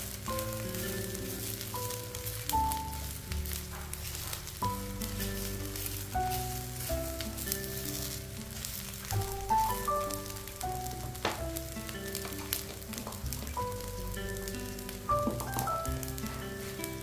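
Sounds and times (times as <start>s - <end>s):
spatula stirring in wok: 0.0s - 9.8s
background music: 0.0s - 17.0s
food sizzling in oil: 0.0s - 17.0s.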